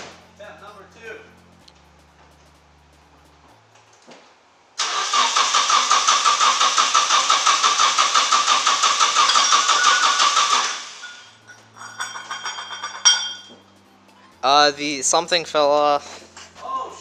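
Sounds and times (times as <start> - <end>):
engine cranking on starter: 4.8 - 11.3.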